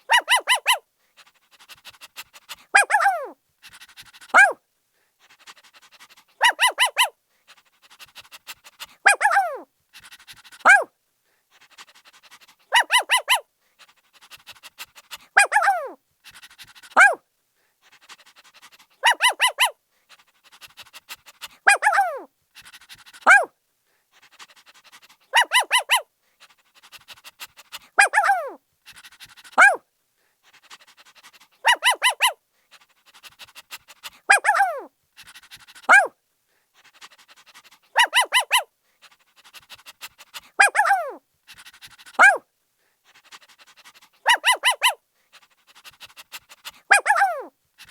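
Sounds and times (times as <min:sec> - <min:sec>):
puppy panting: 0:00.0 - 0:04.6, 0:05.2 - 0:17.2, 0:17.8 - 0:29.8, 0:30.4 - 0:47.9
puppy yipping: 0:00.1 - 0:00.8, 0:02.7 - 0:03.4, 0:04.3 - 0:04.6, 0:06.4 - 0:07.1, 0:09.0 - 0:09.6, 0:10.6 - 0:10.9, 0:12.7 - 0:13.4, 0:15.4 - 0:16.0, 0:16.9 - 0:17.2, 0:19.0 - 0:19.8, 0:21.7 - 0:22.3, 0:23.2 - 0:23.5, 0:25.3 - 0:26.0, 0:28.0 - 0:28.6, 0:29.6 - 0:29.8, 0:31.6 - 0:32.4, 0:34.0 - 0:34.9, 0:35.8 - 0:36.1, 0:38.0 - 0:38.7, 0:40.6 - 0:41.2, 0:42.2 - 0:42.4, 0:44.2 - 0:45.0, 0:46.9 - 0:47.9.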